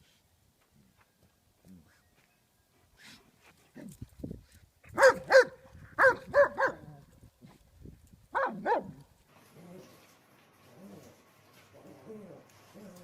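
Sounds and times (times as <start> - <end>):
dog barking: 5.0 - 6.9, 8.4 - 9.0.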